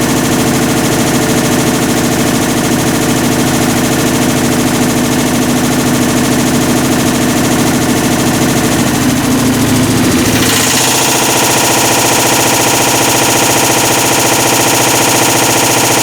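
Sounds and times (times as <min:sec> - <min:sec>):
washing machine rattling and grinding: 0:00.0 - 0:16.0.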